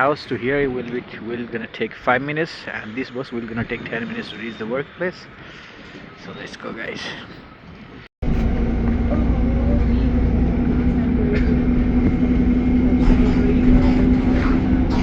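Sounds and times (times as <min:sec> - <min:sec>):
street noise: 0:00.0 - 0:15.0
bus engine rumble: 0:08.2 - 0:15.0.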